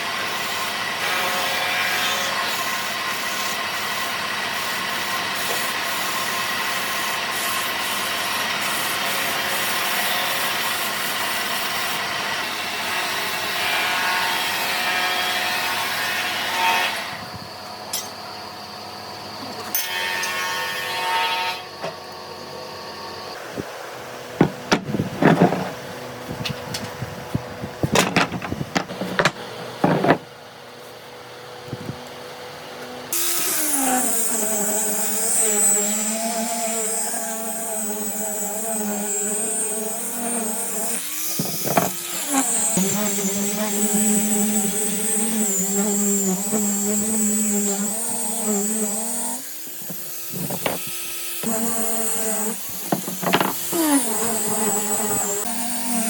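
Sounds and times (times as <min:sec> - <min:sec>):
power tool working wood: 0:24.4 - 0:30.3, 0:33.1 - 0:56.0
knocks and taps on wood: 0:52.9 - 0:53.6.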